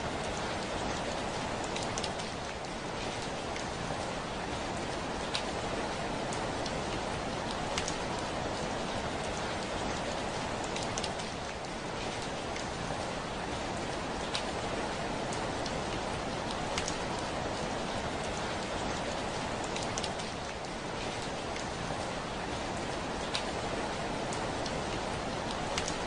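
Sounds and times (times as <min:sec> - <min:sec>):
heavy rain falling: 0:00.0 - 0:26.0
raindrops ticking on window glass: 0:07.4 - 0:08.4, 0:16.4 - 0:17.4, 0:18.3 - 0:20.6, 0:25.4 - 0:26.0.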